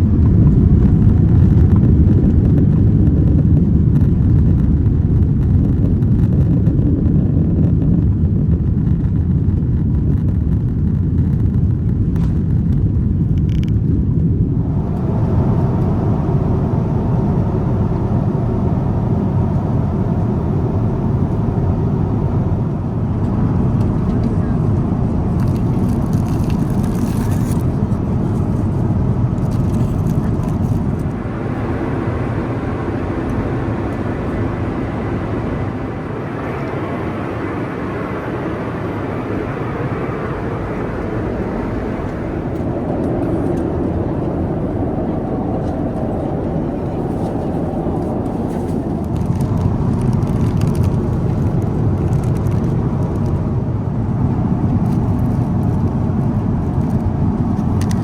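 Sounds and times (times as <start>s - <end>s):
vehicle interior rumble: 12.0s - 58.0s.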